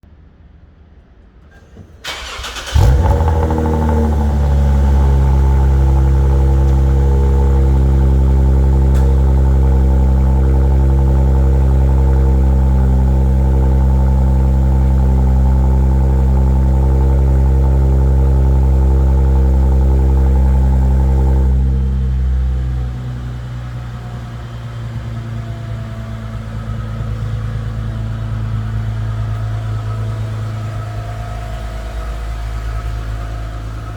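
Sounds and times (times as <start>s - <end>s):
car engine cranking: 1.5s - 24.0s
car engine idling: 1.5s - 33.9s.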